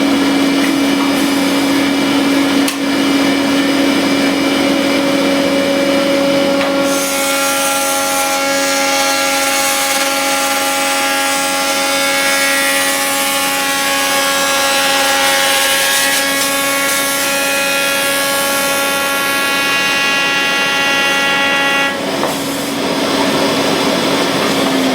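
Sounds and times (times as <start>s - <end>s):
machine motor hum: 0.0s - 15.2s
wood being machined: 0.5s - 24.9s.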